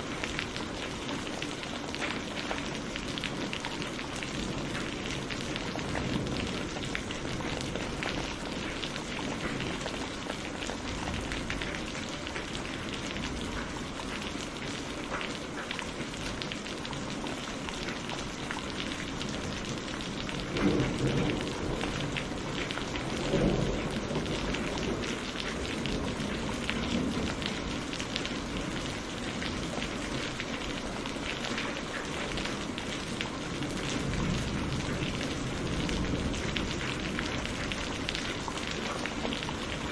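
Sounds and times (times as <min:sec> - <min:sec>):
thunder rumbles: 0:02.5 - 0:13.7, 0:18.8 - 0:31.0, 0:32.2 - 0:39.9.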